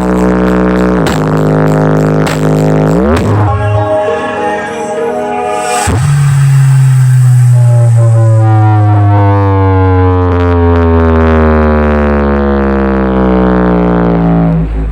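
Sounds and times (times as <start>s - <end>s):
loud synthesized tone gliding down: 0.0s - 14.9s.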